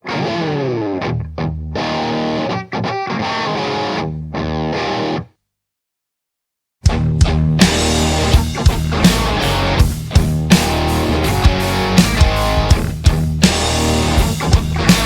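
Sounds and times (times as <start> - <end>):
distorted electric guitar riff: 0.0 - 5.3, 6.8 - 15.0
band playing loudly: 6.9 - 15.0.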